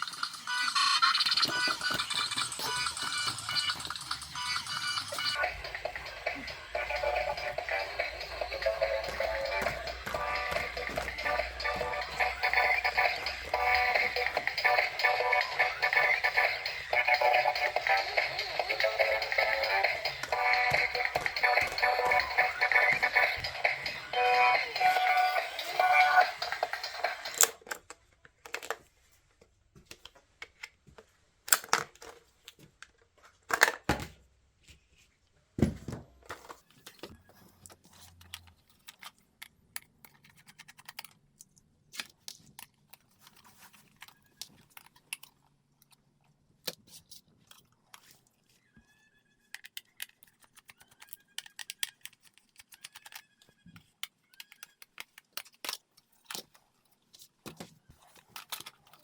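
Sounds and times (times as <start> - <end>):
plastic toy parts clicking: 27.2 - 28.9, 31.4 - 33.9, 37.7 - 48.3, 49.3 - 59.0.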